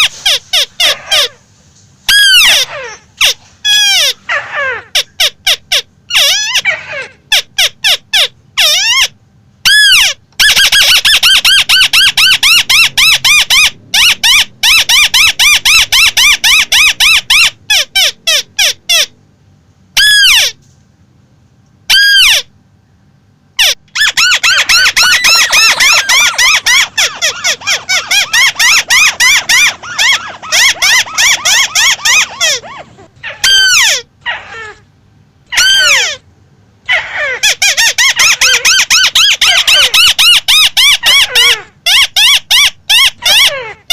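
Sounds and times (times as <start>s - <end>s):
bird calling repeated notes: 23.6s - 32.8s.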